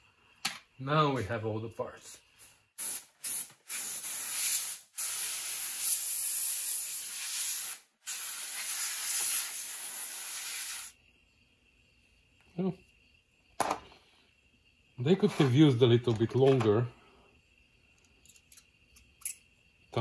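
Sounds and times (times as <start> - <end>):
air blow gun hissing: 2.8 - 11.0.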